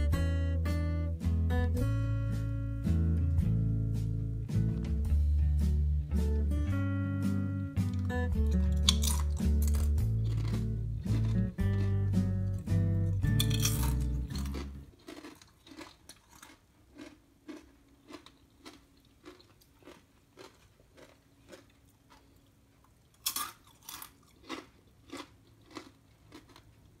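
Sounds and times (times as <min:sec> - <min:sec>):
chewing crispy chips: 0:07.9 - 0:27.0.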